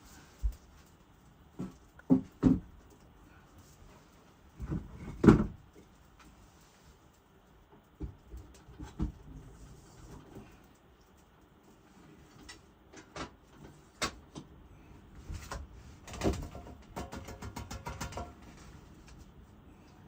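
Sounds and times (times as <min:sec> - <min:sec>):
knocks of things being handled: 0:01.6 - 0:02.8, 0:15.4 - 0:18.6.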